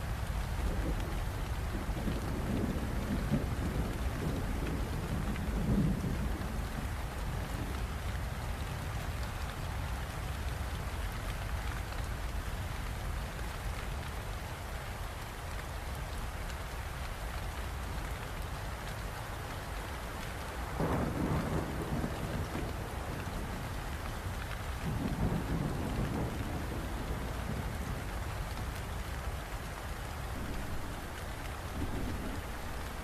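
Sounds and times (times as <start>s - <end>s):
heavy rain: 0.0s - 33.0s
deep rumble of thunder: 0.5s - 8.0s, 20.6s - 28.9s, 30.3s - 33.0s.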